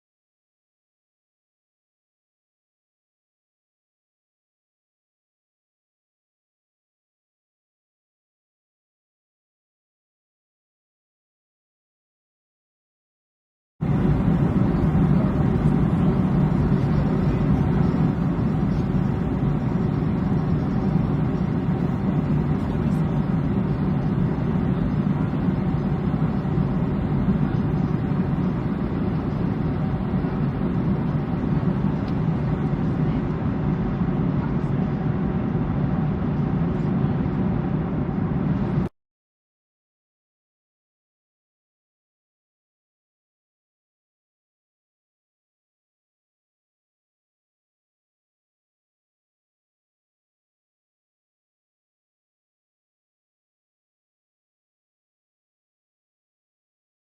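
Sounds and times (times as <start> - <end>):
airplane engines droning: 13.8 - 38.9
faint hum: 13.8 - 38.9.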